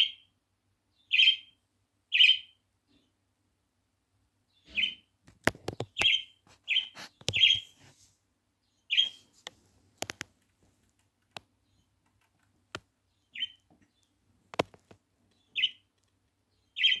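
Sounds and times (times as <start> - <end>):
bird chirping: 0.0 - 3.3, 4.3 - 7.8, 8.5 - 9.4, 11.2 - 17.0
sharp clicks and taps: 5.3 - 6.1, 7.2 - 7.5, 9.4 - 12.9, 13.6 - 16.4.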